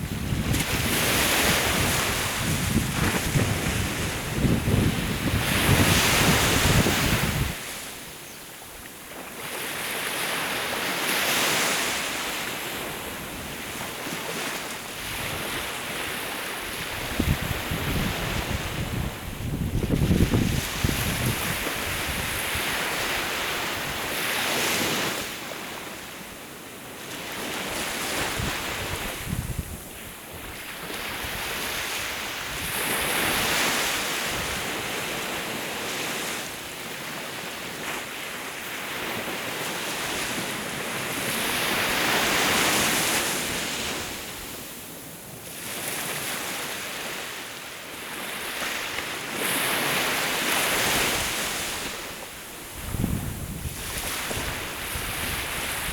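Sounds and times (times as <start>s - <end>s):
wind rumbling on microphone: 0.0s - 7.9s, 15.0s - 24.2s, 27.8s - 35.0s, 50.5s - 55.9s
sea waves washing ashore: 0.0s - 55.9s.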